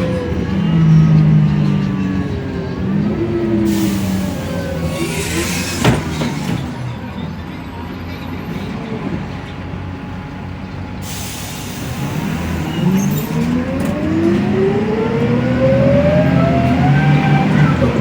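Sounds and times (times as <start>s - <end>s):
diesel bus engine: 0.0s - 18.0s
air brake hiss: 3.7s - 6.2s, 11.0s - 12.3s.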